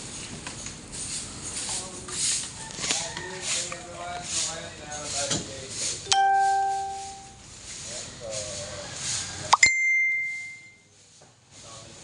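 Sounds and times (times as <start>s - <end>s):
high bell-like ding: 6.1s - 7.4s, 9.6s - 10.9s
low bell-like ding: 6.1s - 7.4s, 9.6s - 10.8s.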